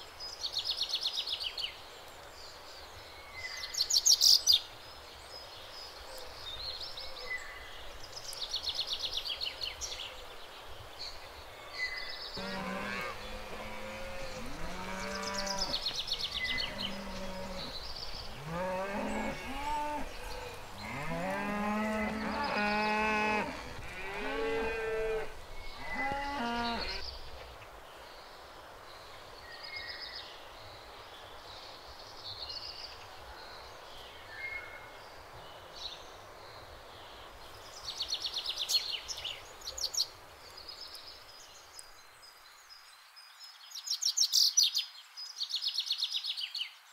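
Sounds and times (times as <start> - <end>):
cows mooing: 12.4 - 15.8, 16.5 - 17.8, 18.4 - 27.0.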